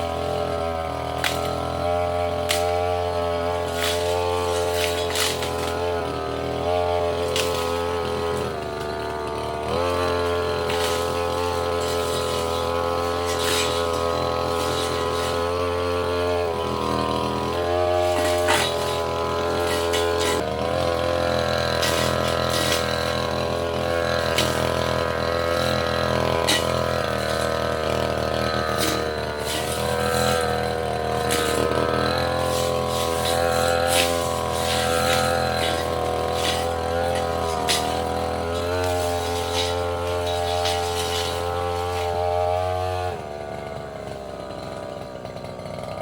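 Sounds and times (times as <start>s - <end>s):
brush cutter engine running: 0.0s - 46.0s.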